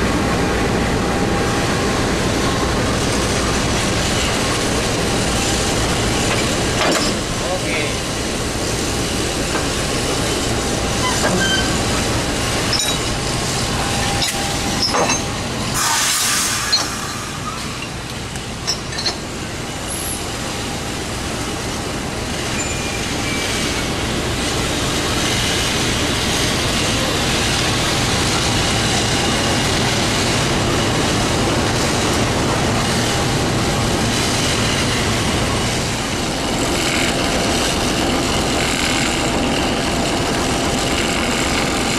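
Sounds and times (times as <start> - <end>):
train rumble: 0.0 - 41.9
loud hiss: 15.6 - 17.8.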